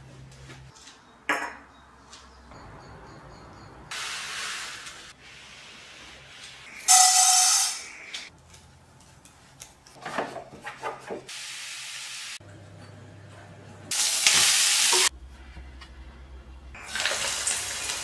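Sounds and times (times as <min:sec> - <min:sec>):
food sizzling in hot oil: 0:13.9 - 0:15.1, 0:16.8 - 0:18.0.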